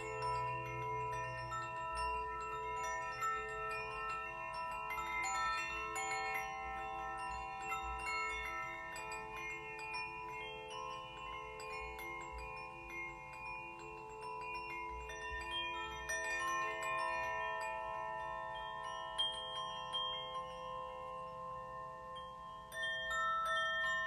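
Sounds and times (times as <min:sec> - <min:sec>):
chimes and bells ringing: 0:00.0 - 0:24.0.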